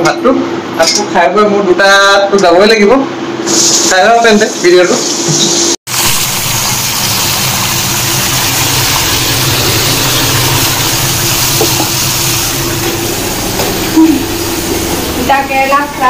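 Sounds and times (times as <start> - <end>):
vegetable slices sizzling in oil: 3.5 - 16.0.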